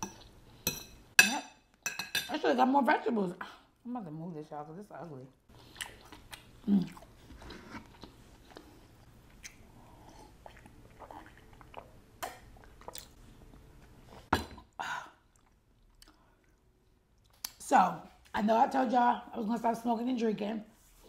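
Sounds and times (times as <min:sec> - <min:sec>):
chewing mouth sounds: 0:05.6 - 0:14.0.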